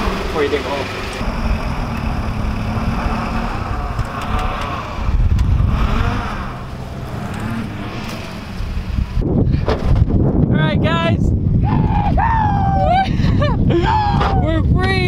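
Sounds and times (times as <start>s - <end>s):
truck engine revving under load: 0.0s - 10.3s.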